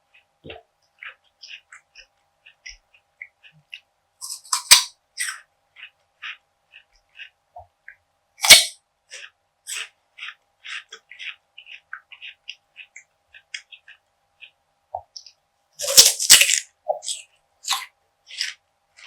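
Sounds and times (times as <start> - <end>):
crisp crackling chewing: 0.1 - 7.4, 8.4 - 14.6, 15.2 - 19.0
crunchy food bites: 8.4 - 11.4, 15.8 - 18.6.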